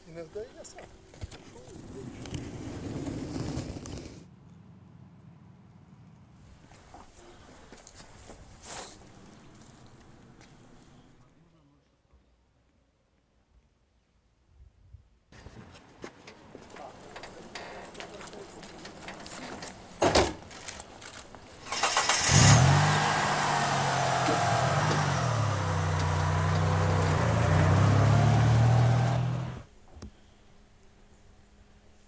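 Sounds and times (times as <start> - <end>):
jeep engine running: 21.6 - 29.7.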